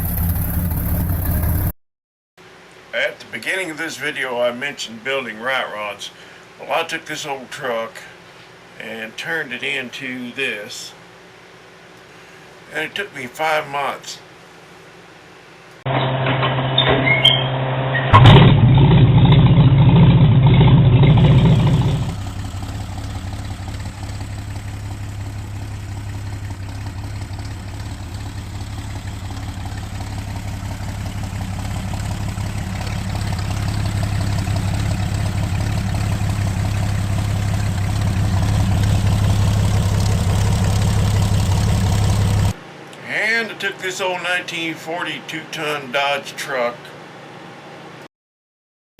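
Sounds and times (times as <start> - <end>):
truck engine starting and idling: 0.0 - 1.8, 15.9 - 42.6.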